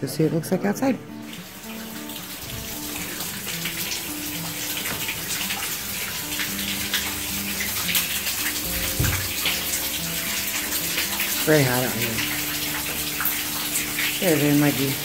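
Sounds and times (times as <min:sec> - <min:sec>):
drips ticking: 0:01.0 - 0:15.0
light drizzle hissing: 0:01.2 - 0:15.0
low thump: 0:08.7 - 0:09.3.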